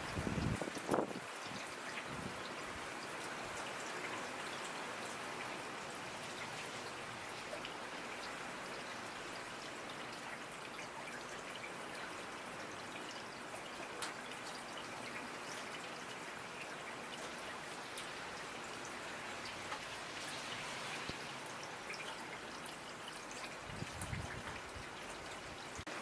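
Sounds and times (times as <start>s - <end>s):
steady rainfall: 0.0s - 26.0s
raindrop ticks: 19.4s - 20.3s.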